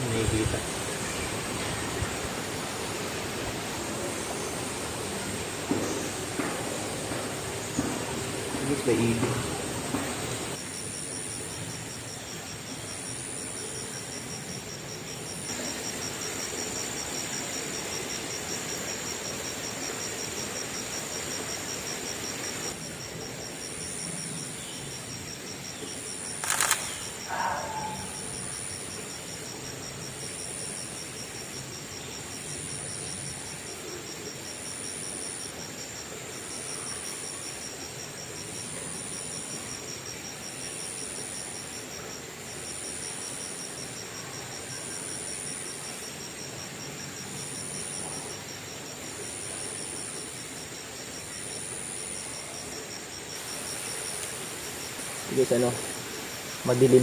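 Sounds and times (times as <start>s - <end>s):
insect chorus trilling: 0.0s - 57.0s
sharp click: 26.4s - 27.2s.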